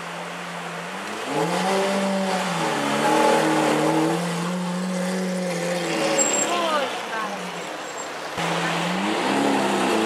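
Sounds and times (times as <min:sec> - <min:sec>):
sports car engine revving: 0:08.4 - 0:10.0.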